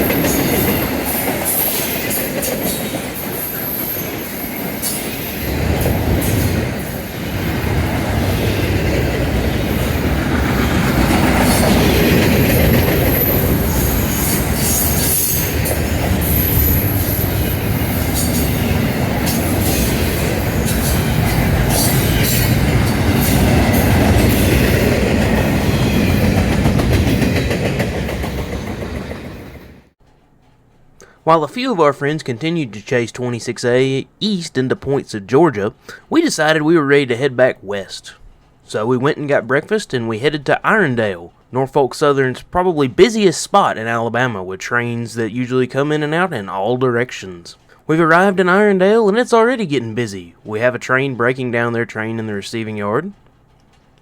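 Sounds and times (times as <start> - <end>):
high wheel squeal: 0.0 - 26.3
train wheels clacking over rails: 0.0 - 29.9.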